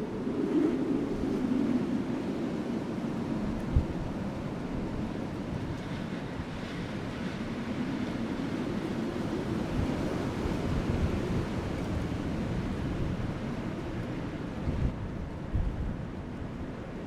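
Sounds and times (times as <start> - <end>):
soft wind: 0.0 - 17.0.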